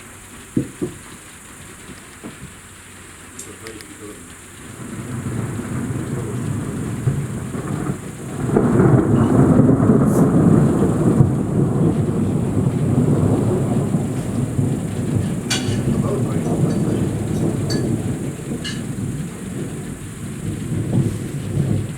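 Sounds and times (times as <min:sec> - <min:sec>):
rain falling: 0:00.0 - 0:21.9
rolling thunder: 0:00.0 - 0:21.9.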